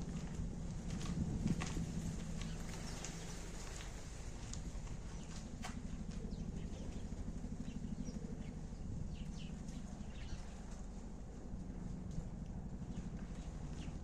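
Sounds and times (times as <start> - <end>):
steady low rumble: 0.0 - 14.0
sparrows chirping: 4.9 - 11.0, 12.7 - 14.0.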